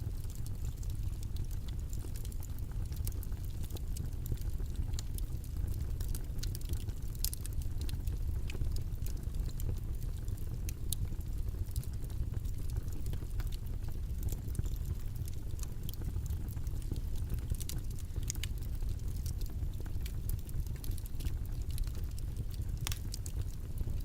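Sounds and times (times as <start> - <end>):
low rumbling white noise: 0.0 - 24.0
faint small clicks: 22.8 - 23.1.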